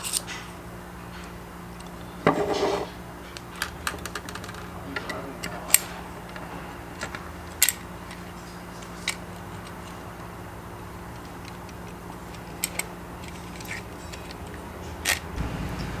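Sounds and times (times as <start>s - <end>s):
small metal parts clicking: 0.0s - 0.5s, 7.0s - 10.0s, 11.1s - 15.4s
steady low hum: 13.3s - 16.0s.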